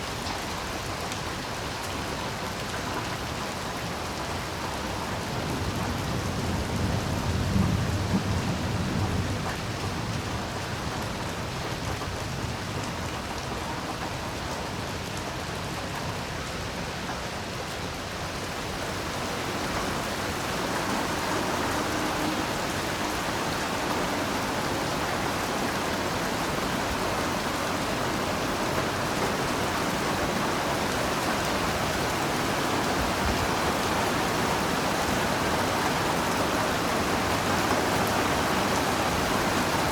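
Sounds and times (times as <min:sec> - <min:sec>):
heavy rain falling: 0:00.0 - 0:39.9
low rumble of thunder: 0:05.2 - 0:12.9, 0:18.6 - 0:39.8.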